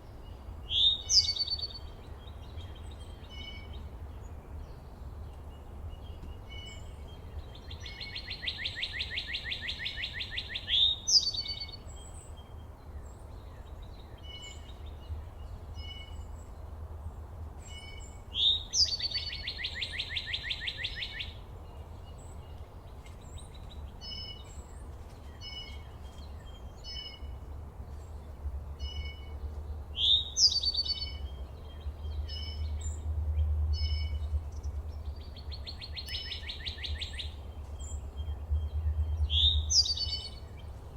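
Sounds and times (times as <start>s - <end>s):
low rumble: 38.0s - 39.7s.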